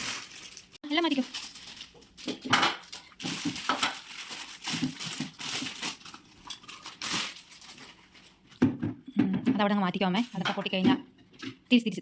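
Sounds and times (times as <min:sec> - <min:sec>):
packing material crinkling: 0:00.0 - 0:08.5.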